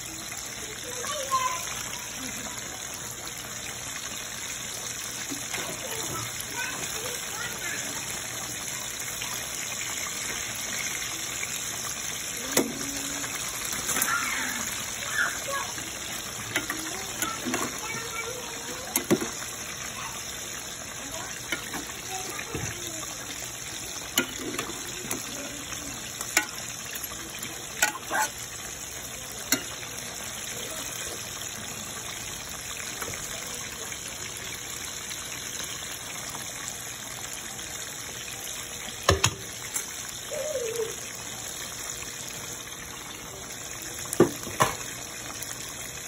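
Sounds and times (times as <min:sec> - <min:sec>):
food sizzling in pot: 0:00.0 - 0:46.0
spoon stirring pot: 0:18.9 - 0:19.4, 0:24.1 - 0:25.3.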